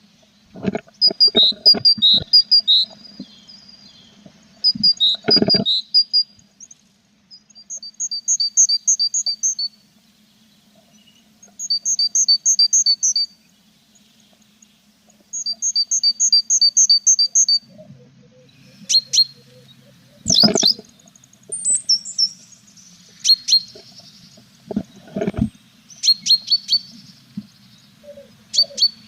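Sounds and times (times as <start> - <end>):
birds rapid high chirps: 0.0 - 29.0
short sharp bird calls: 27.9 - 29.0.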